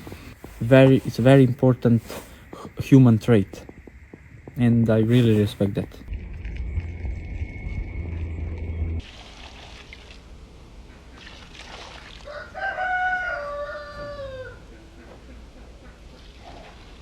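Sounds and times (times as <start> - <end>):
low rumble: 6.0 - 9.3
rooster crowing: 12.2 - 14.8.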